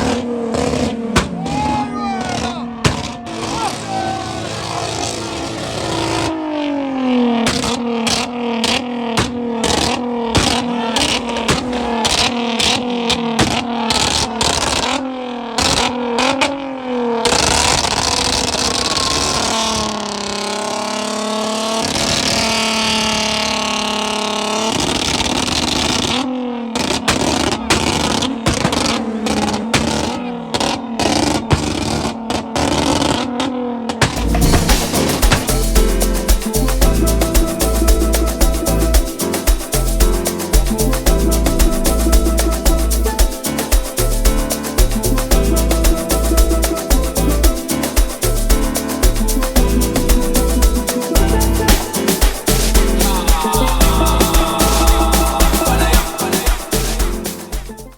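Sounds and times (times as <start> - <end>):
car engine revving hard: 0.0 - 1.3, 2.2 - 35.8.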